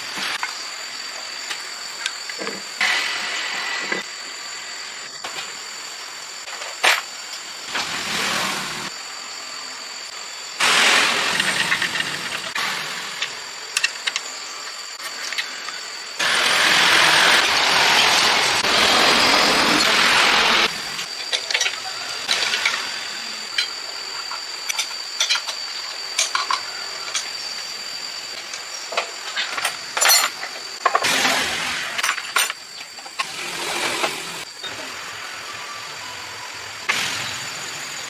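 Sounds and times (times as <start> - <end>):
hissing bursts: 10.1 - 13.7, 15.5 - 21.1, 33.1 - 38.0
metal parts clinking: 29.3 - 31.0.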